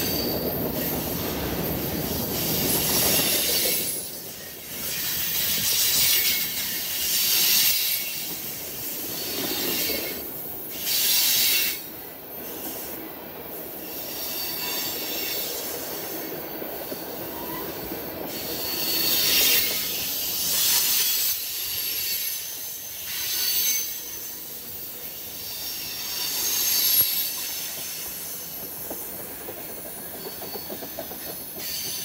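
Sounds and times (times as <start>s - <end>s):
freight cars rolling on rails: 0.0s - 32.0s
high wheel squeal: 13.8s - 32.0s.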